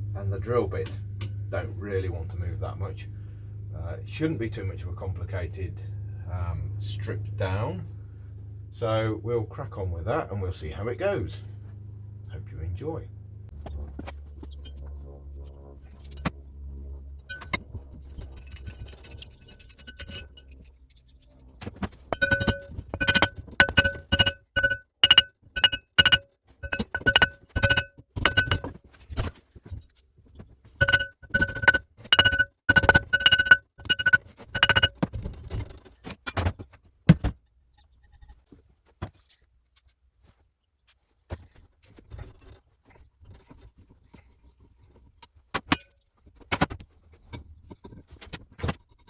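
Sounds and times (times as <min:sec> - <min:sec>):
low hum: 0:00.0 - 0:28.7, 0:30.8 - 0:35.0
hammer striking metal: 0:22.2 - 0:28.7, 0:30.8 - 0:35.0.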